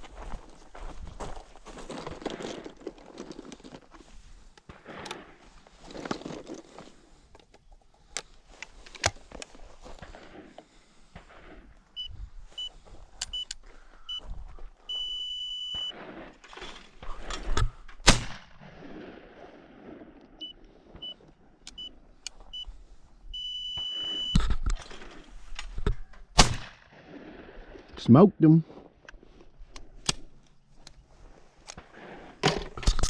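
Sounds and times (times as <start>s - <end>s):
electronic beeps: 12.0s - 14.2s, 14.9s - 16.0s, 23.3s - 24.4s
shotgun shot: 18.0s - 18.6s, 26.4s - 26.9s.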